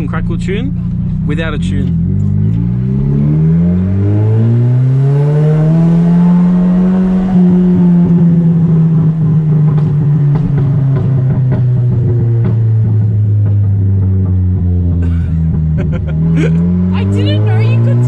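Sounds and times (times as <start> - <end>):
exhaust pops and crackles: 0.0 - 3.2, 8.1 - 16.6
car engine accelerating hard: 0.0 - 18.0.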